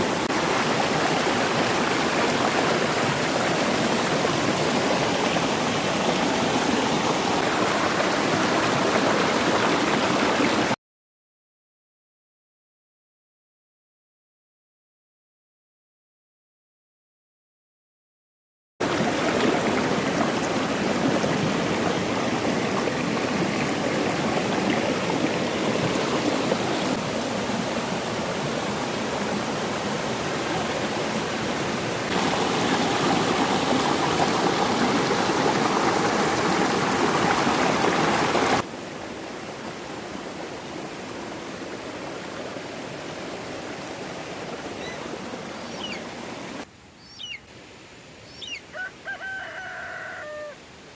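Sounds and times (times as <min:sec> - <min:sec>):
stream water rushing: 0:00.0 - 0:10.8, 0:18.8 - 0:50.9
rooster crowing: 0:48.7 - 0:50.6.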